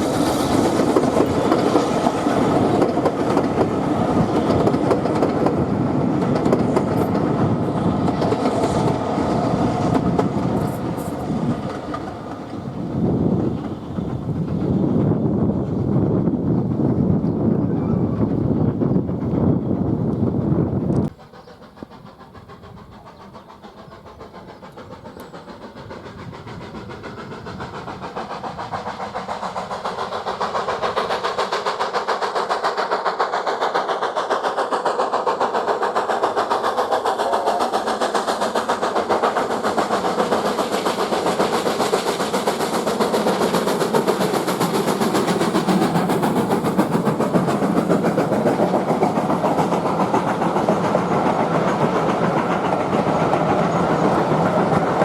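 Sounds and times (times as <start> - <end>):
steam locomotive exhaust beats: 0.0 - 55.0.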